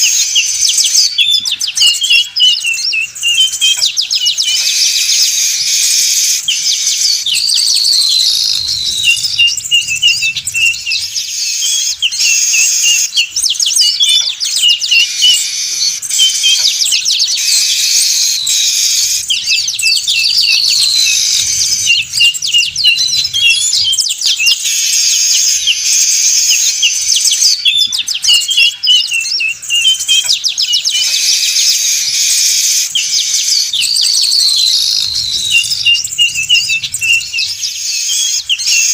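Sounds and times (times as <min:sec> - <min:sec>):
weaver birds chattering: 0:00.0 - 0:38.9.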